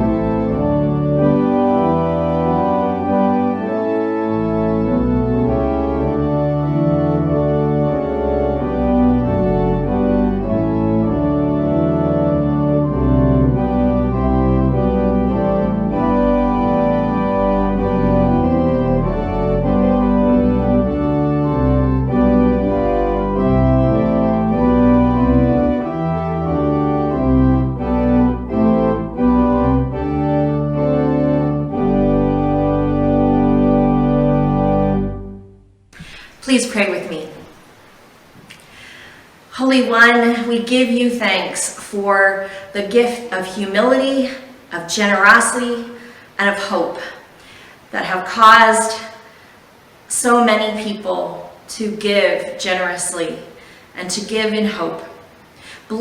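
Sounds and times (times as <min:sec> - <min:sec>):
organ chords: 0:00.0 - 0:50.6
low bass line: 0:04.3 - 0:35.9.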